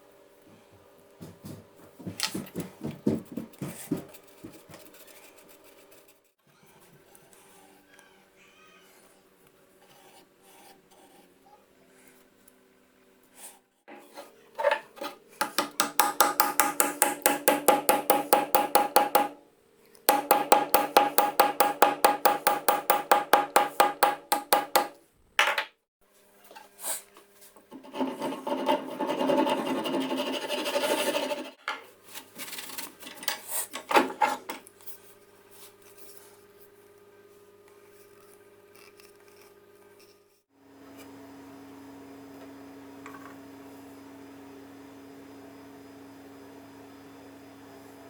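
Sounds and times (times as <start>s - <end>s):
file rubbing on metal: 27.7s - 31.6s
scattered scrapes: 27.7s - 31.6s.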